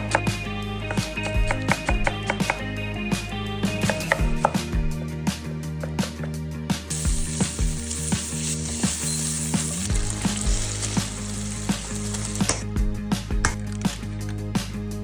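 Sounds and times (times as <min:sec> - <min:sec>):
background music with steady beat: 0:00.0 - 0:15.0
food sizzling in a frying pan: 0:06.9 - 0:12.6.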